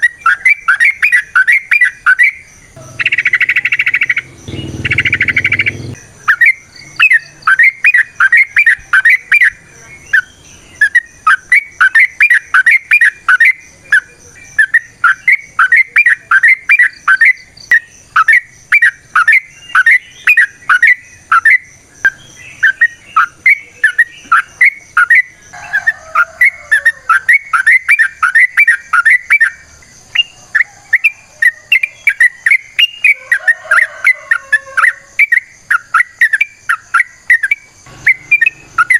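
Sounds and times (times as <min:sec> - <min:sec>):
bird singing bubbling notes: 0:00.0 - 0:09.6, 0:35.2 - 0:38.9.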